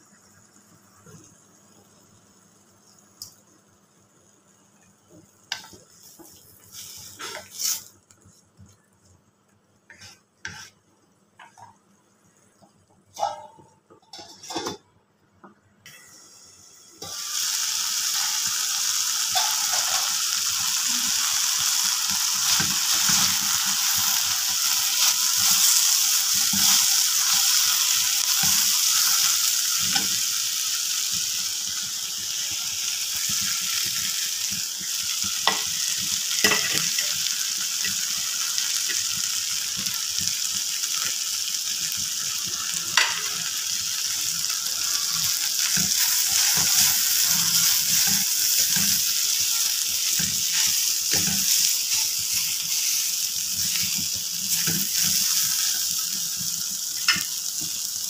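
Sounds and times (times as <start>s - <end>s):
beetroot sizzling in a pan: 0.0s - 14.8s, 15.9s - 58.0s
spatula stirring and scraping: 9.9s - 10.8s.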